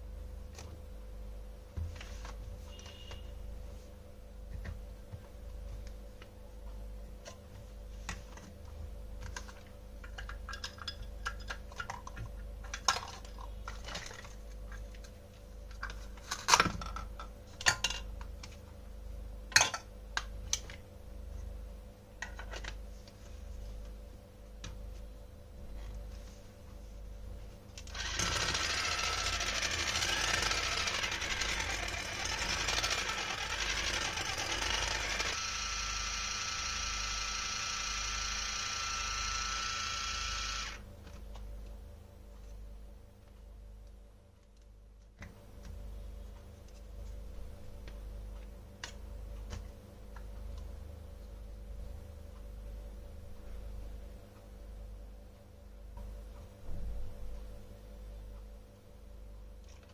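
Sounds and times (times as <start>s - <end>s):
toy kitchen pieces clicking: 28.0s - 35.4s.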